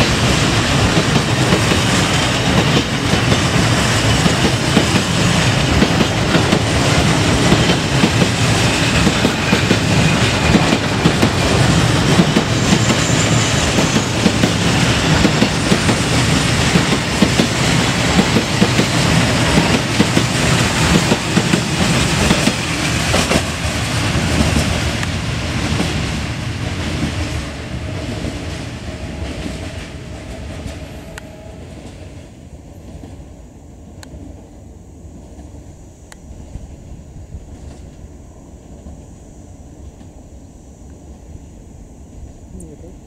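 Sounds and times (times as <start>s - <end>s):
steel wheels clattering over rail joints: 0.0s - 31.0s
freight train rolling past: 0.0s - 43.0s.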